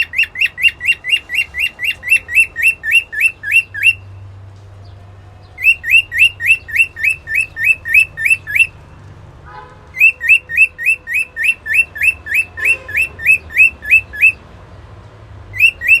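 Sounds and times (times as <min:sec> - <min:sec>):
cockatiel chirping: 0:00.0 - 0:04.0, 0:05.6 - 0:08.8, 0:10.0 - 0:14.4, 0:15.6 - 0:16.0.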